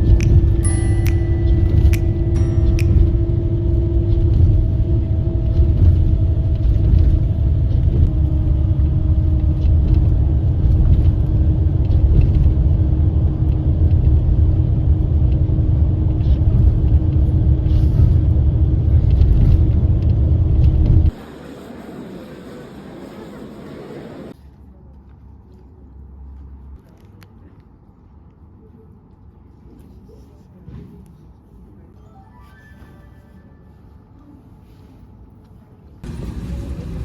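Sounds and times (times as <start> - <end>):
low vehicle rumble: 0.0 - 24.4, 36.0 - 37.0
constant hum: 0.0 - 32.0, 33.8 - 37.0.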